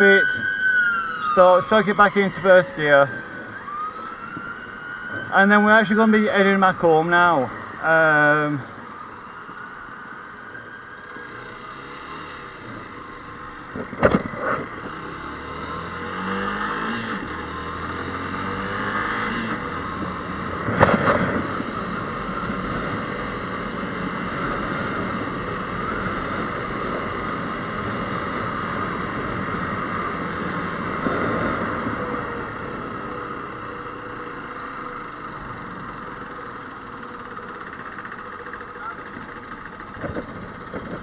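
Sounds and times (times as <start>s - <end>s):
motorcycle engine accelerating: 10.6s - 41.0s.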